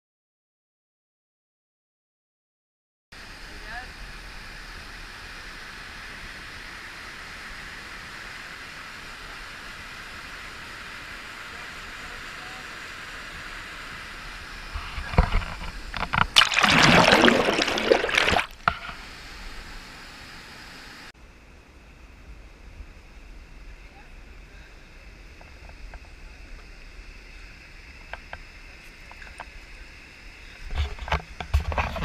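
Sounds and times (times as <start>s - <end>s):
flowing river water: 8.6s - 19.7s
water splashing and sloshing: 14.8s - 19.0s.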